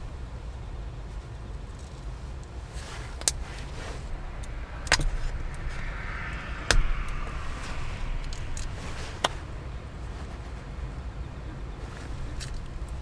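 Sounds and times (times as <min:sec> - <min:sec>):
steady low rumble: 0:02.8 - 0:13.0.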